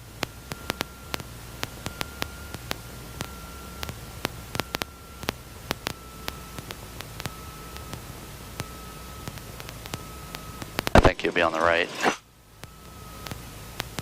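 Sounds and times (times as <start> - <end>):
electrical hiss: 0.0 - 11.4, 12.2 - 14.0
faint high whine: 0.0 - 14.0
low hum: 0.0 - 14.0
sharp clicks: 8.6 - 11.1.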